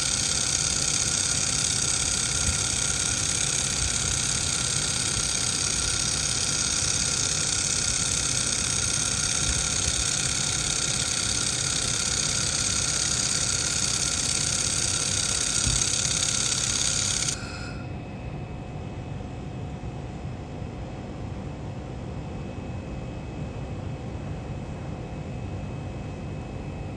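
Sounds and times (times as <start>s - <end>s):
welding machine hiss and whine: 0.0s - 18.0s.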